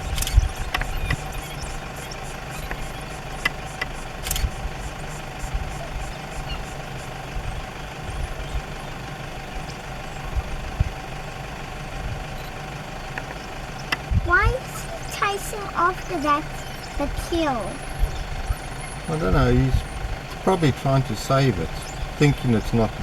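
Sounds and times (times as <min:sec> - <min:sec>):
short clicks and knocks: 0:00.0 - 0:01.5, 0:02.7 - 0:05.0
vehicle engine idling: 0:00.0 - 0:23.0.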